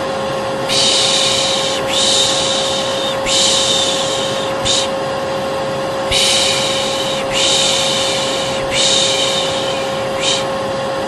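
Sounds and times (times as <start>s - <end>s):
hair dryer running: 0.0s - 11.0s
person shushing: 0.7s - 5.0s, 6.1s - 10.6s.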